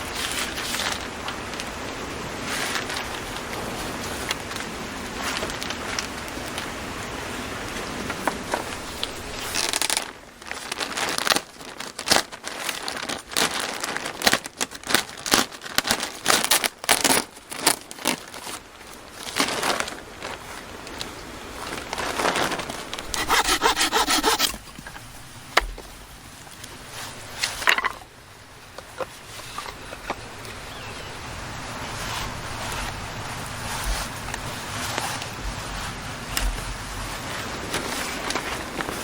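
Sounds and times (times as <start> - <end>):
rasping scraping strokes: 23.0 - 25.1.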